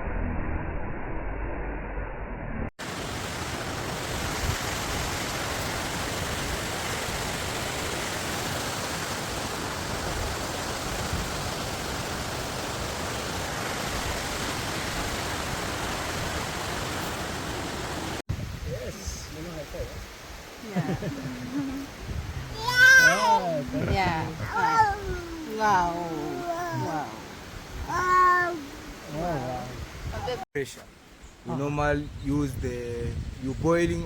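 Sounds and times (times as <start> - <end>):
waterfall roaring: 2.8 - 18.2, 20.5 - 30.4.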